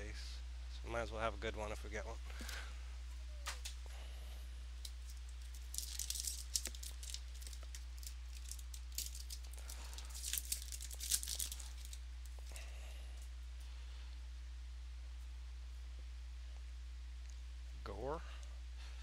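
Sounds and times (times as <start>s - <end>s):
wrapping torn and crinkled: 4.8s - 13.3s.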